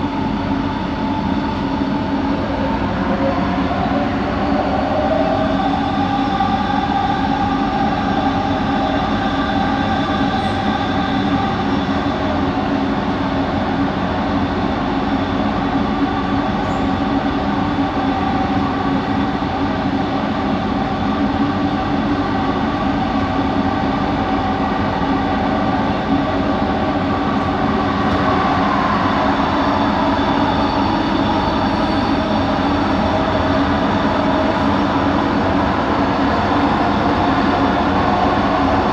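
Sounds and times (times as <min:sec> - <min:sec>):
train running rumble: 0:00.0 - 0:38.9.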